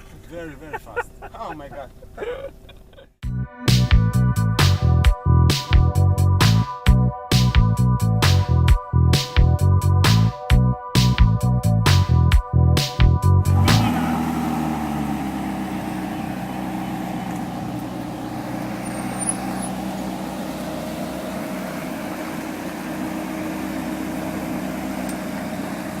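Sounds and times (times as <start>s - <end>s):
electronic music: 6.6s - 14.2s
car engine running steadily: 13.1s - 26.0s.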